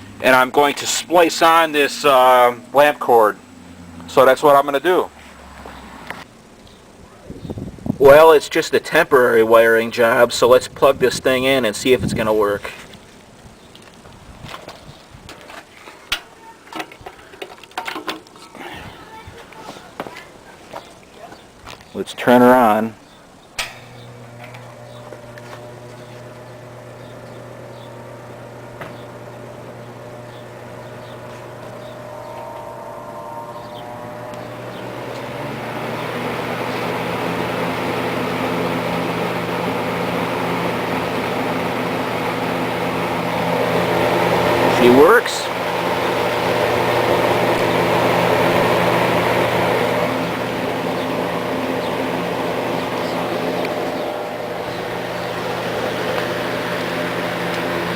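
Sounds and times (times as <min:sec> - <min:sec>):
box fan motor humming: 0:00.0 - 0:08.4, 0:22.2 - 0:57.9.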